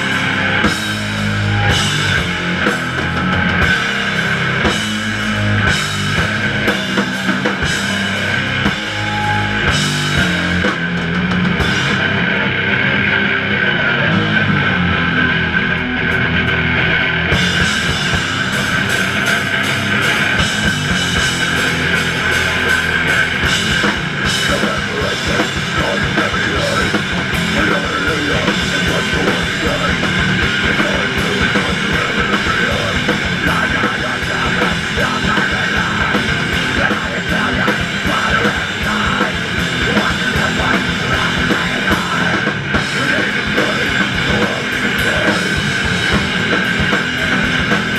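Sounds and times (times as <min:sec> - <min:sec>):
punk band playing: 0:00.0 - 0:47.9.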